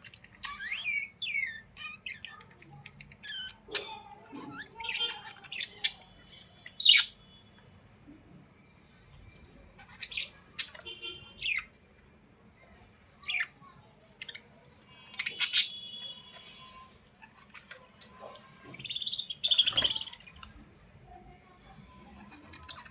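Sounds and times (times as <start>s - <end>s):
bird chirping: 0.0s - 7.6s, 9.8s - 11.8s, 14.2s - 20.5s.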